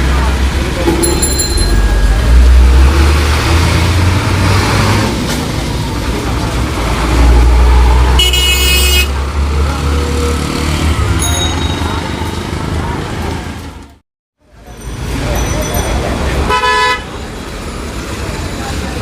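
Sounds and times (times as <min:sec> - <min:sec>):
truck diesel engine rumbling: 0:00.0 - 0:14.0.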